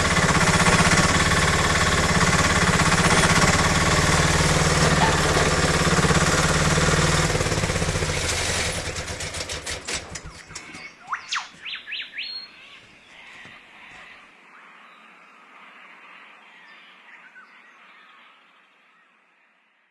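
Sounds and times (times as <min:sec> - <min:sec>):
excavator engine running: 0:00.0 - 0:14.1
bird chirps: 0:09.5 - 0:15.1.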